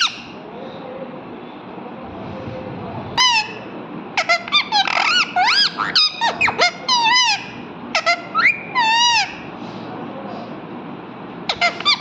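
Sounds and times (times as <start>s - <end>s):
parrot chirping and whistling: 4.2s - 7.4s, 8.0s - 9.4s.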